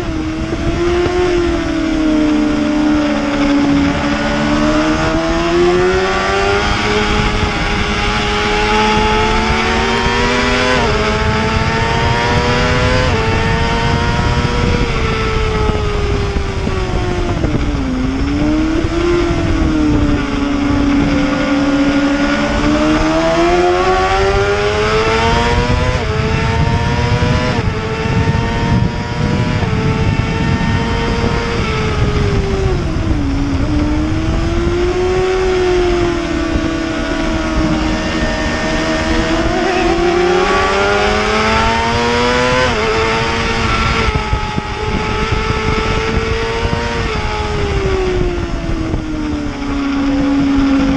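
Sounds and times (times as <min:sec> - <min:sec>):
motorcycle engine at high revs: 0:00.0 - 0:50.9
rushing wind noise: 0:00.0 - 0:50.9.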